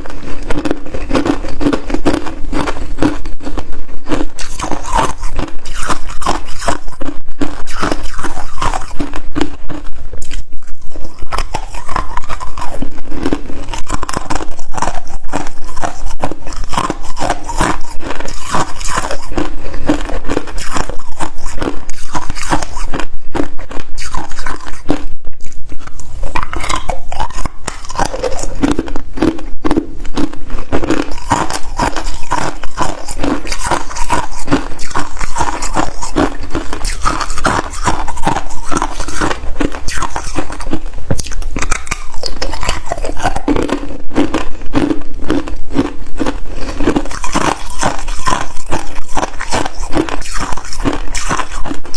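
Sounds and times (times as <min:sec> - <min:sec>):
chewing crunchy ice: 0:00.0 - 0:51.9.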